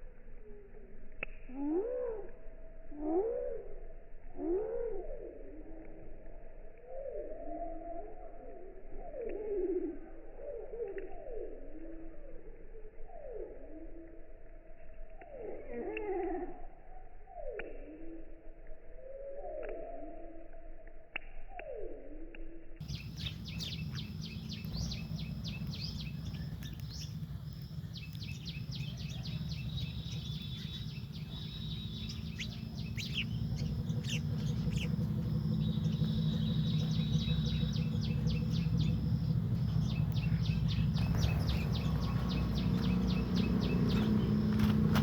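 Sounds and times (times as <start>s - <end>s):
sparrows chirping: 22.8s - 45.0s
steady low rumble: 22.8s - 45.0s.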